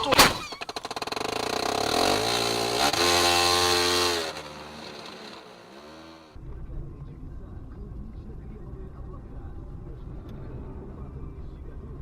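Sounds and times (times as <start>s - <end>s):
vehicle engine revving: 0.7s - 6.4s.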